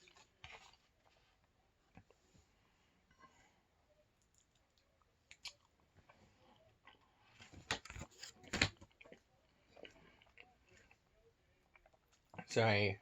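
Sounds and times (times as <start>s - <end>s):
person chewing food: 0.0s - 2.2s, 4.2s - 8.2s, 8.8s - 12.4s
lip smacks: 4.2s - 5.8s.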